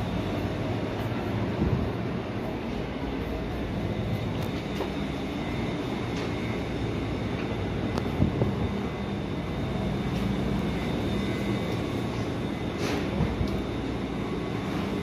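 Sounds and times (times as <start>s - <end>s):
electric train equipment hum: 0.0s - 15.0s.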